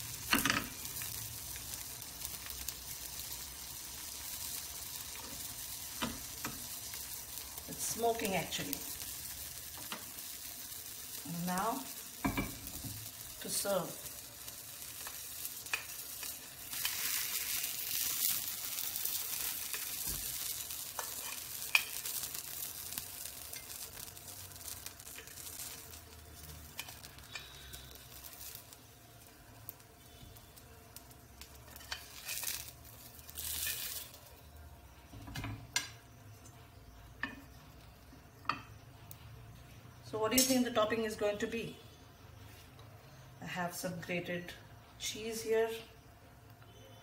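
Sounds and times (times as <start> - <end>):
food sizzling in a grill pan: 0.0 - 42.3
metal spoon scraping a pan: 20.9 - 22.6, 26.7 - 28.1, 31.7 - 32.7.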